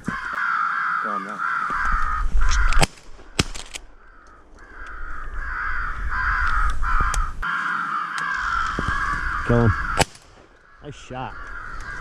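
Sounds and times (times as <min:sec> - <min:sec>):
crows cawing: 0:00.0 - 0:12.0
sharp clicks: 0:02.4 - 0:05.0.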